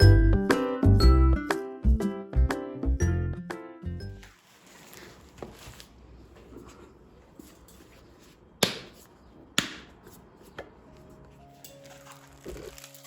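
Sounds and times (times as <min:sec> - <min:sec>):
faint rustling: 0:04.2 - 0:08.5
sharp knocks on hard surface: 0:08.6 - 0:09.0, 0:09.6 - 0:10.0.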